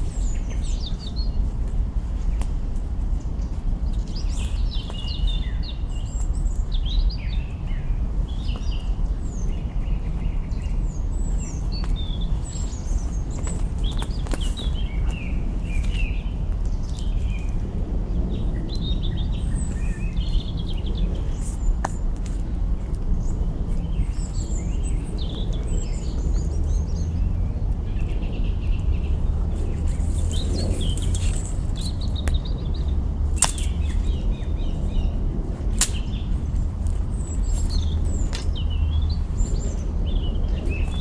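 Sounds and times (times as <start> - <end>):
small birds chirping: 0.0 - 41.0
campfire branches crackling: 29.1 - 34.5, 35.4 - 38.6.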